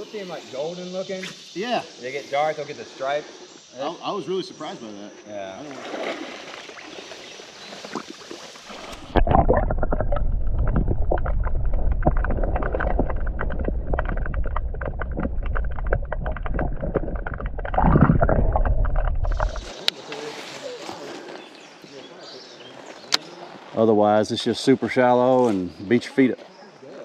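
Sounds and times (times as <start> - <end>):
faint creek: 0.0 - 13.5, 15.2 - 27.0
muffled churning water: 5.7 - 20.1.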